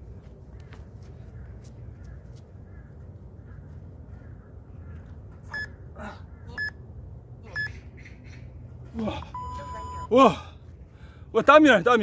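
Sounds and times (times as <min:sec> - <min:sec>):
short electronic beeps: 0:05.4 - 0:05.7, 0:09.3 - 0:10.1.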